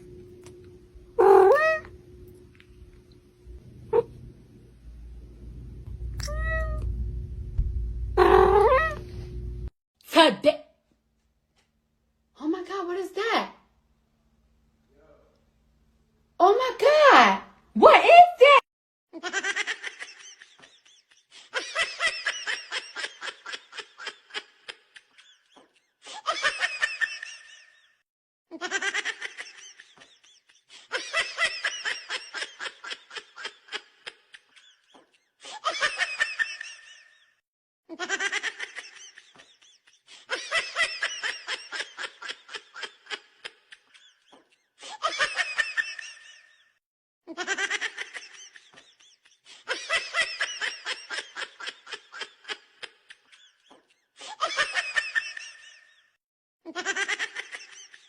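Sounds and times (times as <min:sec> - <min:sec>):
high-pitched cackling laughter: 0:19.2 - 0:58.0.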